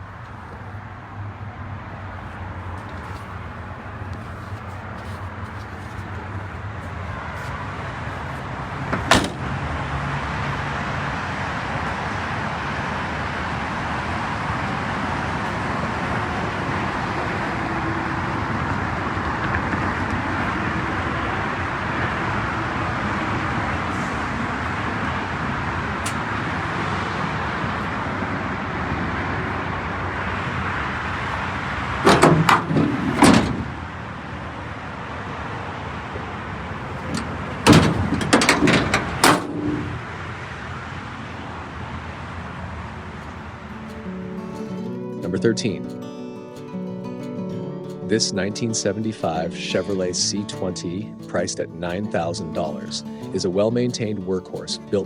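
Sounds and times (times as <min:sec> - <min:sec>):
motor vehicle noise: 0:00.0 - 0:55.0
sharp clunks and knocks: 0:08.9 - 0:09.5, 0:32.0 - 0:33.8, 0:37.1 - 0:40.1.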